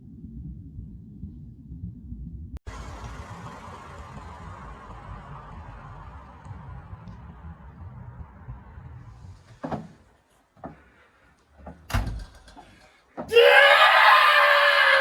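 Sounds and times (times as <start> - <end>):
person yelling loudly: 13.3 - 15.0.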